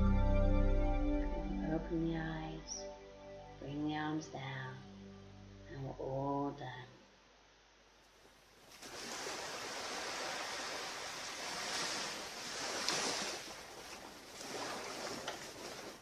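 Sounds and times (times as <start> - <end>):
ocean surf washing onto beach: 8.7 - 16.0.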